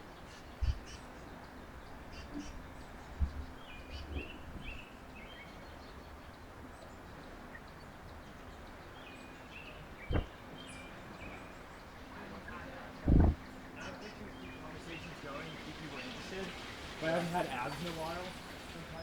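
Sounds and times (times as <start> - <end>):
songbirds chirping: 0.0 - 19.0
dull thumps: 10.1 - 10.3, 13.1 - 13.4
outdoor hiss: 11.6 - 19.0.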